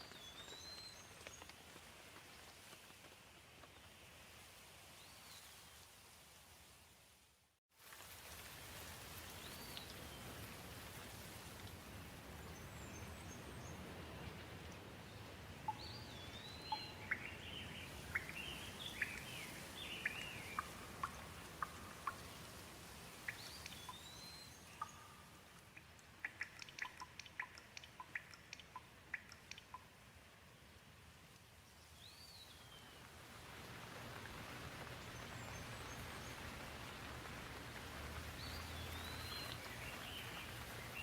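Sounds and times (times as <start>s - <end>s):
light rain falling: 0.0s - 41.0s
small birds chirping: 15.7s - 22.5s, 23.2s - 29.9s, 38.4s - 41.0s.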